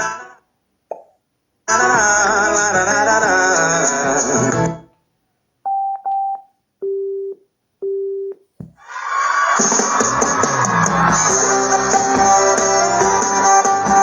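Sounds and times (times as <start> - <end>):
music from portable speaker: 1.7 - 4.9, 9.6 - 14.0
speaker prompt beeps: 5.7 - 8.4.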